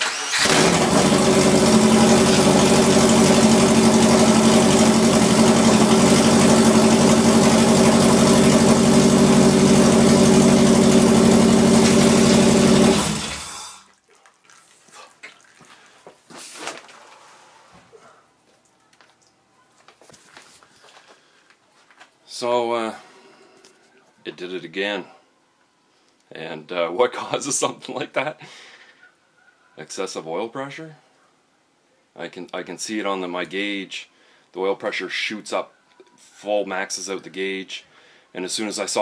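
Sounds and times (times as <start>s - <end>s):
loud car engine idling: 0.4s - 13.6s.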